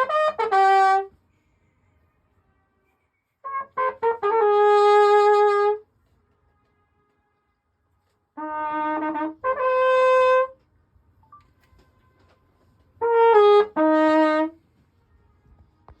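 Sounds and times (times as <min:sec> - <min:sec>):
trumpet playing held notes: 0:00.0 - 0:01.1, 0:03.4 - 0:05.9, 0:08.3 - 0:10.6, 0:11.8 - 0:14.6.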